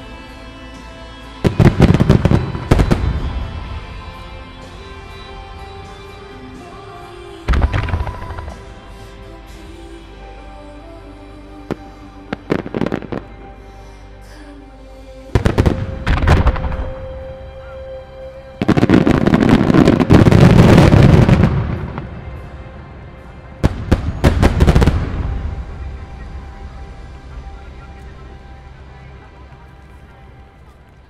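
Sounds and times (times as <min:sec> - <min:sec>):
fireworks bursting with sharp bangs: 0:01.4 - 0:04.3, 0:07.5 - 0:08.8, 0:15.4 - 0:17.2, 0:18.6 - 0:22.1, 0:23.6 - 0:25.6.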